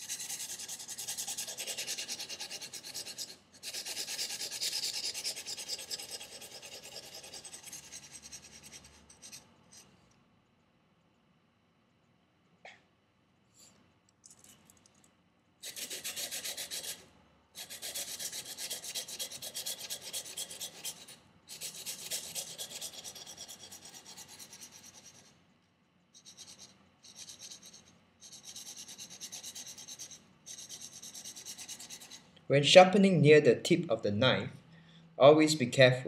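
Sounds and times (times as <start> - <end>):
knife scraping on sandpaper: 0.0 - 9.9, 15.6 - 17.0, 17.6 - 25.3, 26.2 - 32.2.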